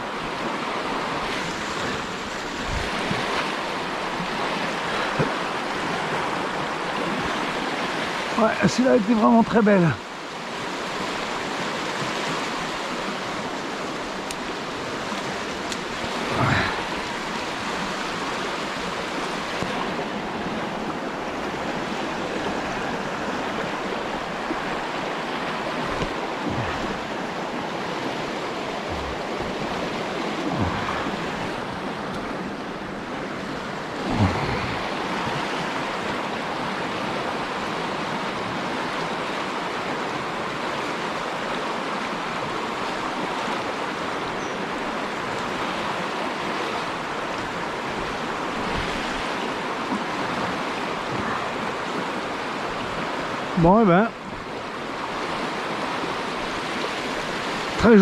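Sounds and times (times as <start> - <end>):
river flowing: 0.0 - 58.0
low thumps: 25.8 - 27.6, 28.4 - 29.8.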